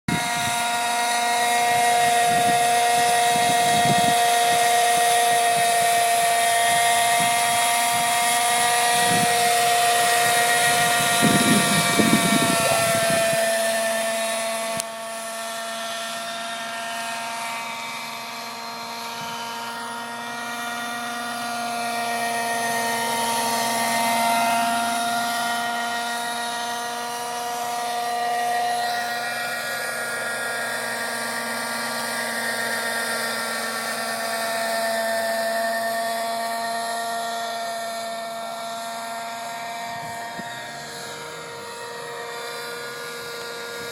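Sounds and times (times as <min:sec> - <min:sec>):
wind buffeting microphone: 0:00.1 - 0:00.6, 0:01.6 - 0:14.0, 0:39.8 - 0:40.7
model helicopter engine whine: 0:00.1 - 0:43.9.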